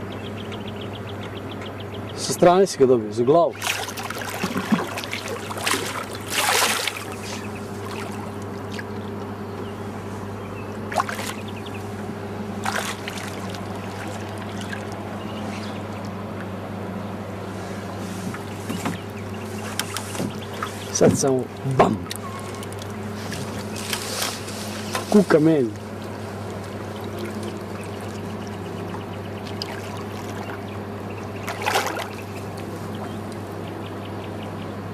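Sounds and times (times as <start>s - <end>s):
boat motor humming: 0.0s - 34.9s
water lapping: 3.3s - 16.6s, 17.2s - 34.4s
splash: 3.5s - 8.8s, 10.9s - 11.4s, 12.6s - 15.0s, 29.4s - 30.6s, 31.4s - 32.7s
short knocks: 19.7s - 22.2s.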